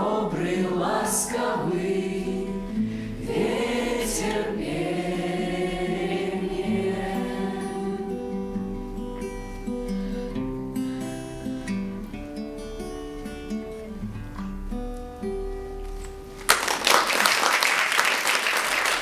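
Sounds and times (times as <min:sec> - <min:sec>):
group of voices singing: 0:00.0 - 0:08.5.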